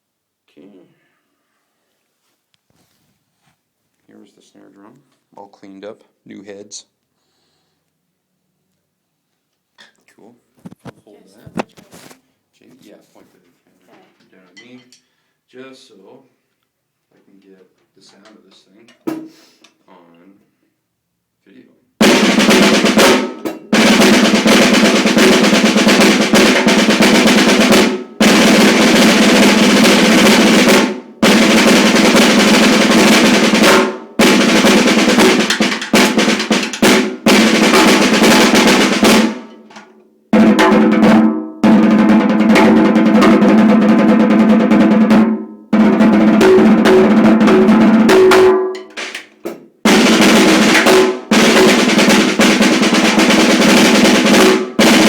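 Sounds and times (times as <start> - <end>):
snare drum rolls: 22.0 - 39.7, 40.4 - 49.3, 49.9 - 55.0.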